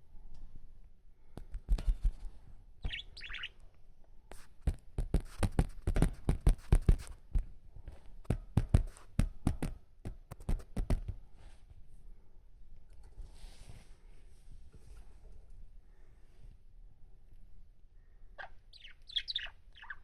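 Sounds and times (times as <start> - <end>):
budgerigar chirping: 2.8 - 3.6, 18.4 - 20.0.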